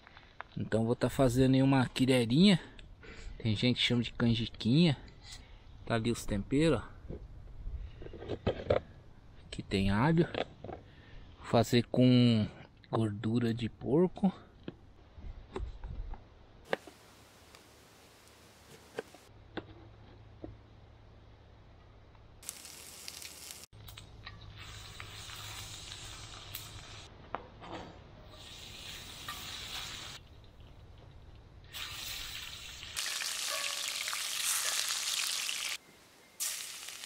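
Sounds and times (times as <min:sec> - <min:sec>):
garlic and pork sizzling in pan: 0:22.4 - 0:23.7, 0:24.6 - 0:27.1, 0:28.3 - 0:30.2, 0:31.7 - 0:35.8, 0:36.4 - 0:37.0.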